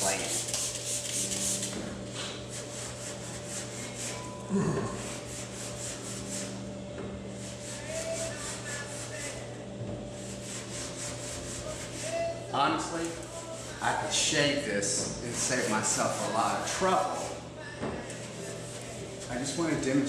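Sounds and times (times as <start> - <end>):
clay bar rubbing on car paint: 0.0 - 4.2, 5.0 - 6.6, 7.4 - 9.5, 10.2 - 12.4, 15.3 - 17.4.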